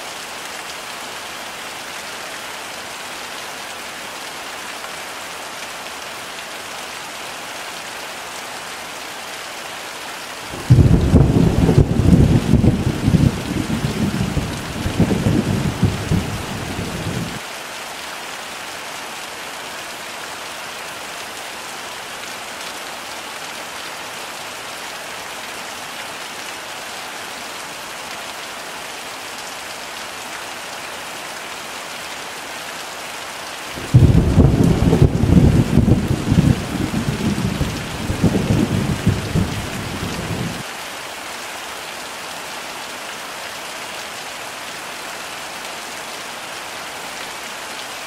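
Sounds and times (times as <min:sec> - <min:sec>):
heavy rain hissing: 0:10.3 - 0:17.5, 0:32.8 - 0:40.8
thunder rumbling: 0:10.6 - 0:17.4, 0:33.8 - 0:40.6.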